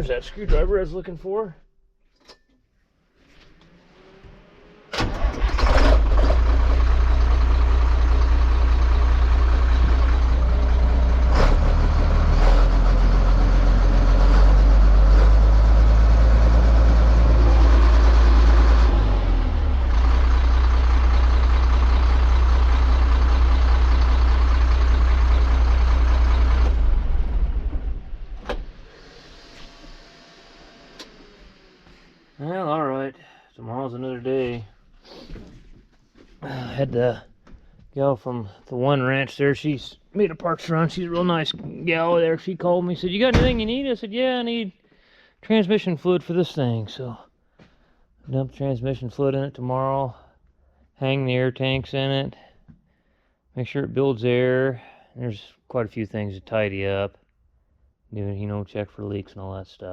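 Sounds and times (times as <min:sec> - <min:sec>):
diesel truck engine running: 0:04.0 - 0:28.8.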